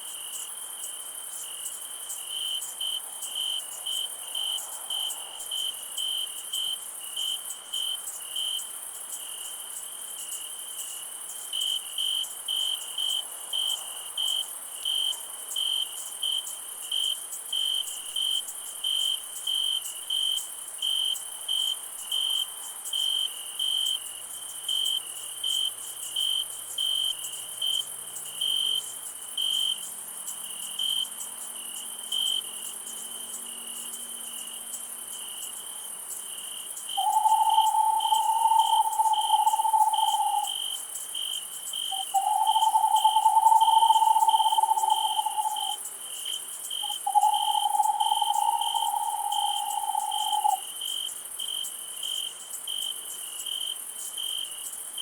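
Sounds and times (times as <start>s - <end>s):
cricket chirping: 0.0s - 55.0s
high-pitched insect trill: 0.0s - 55.0s.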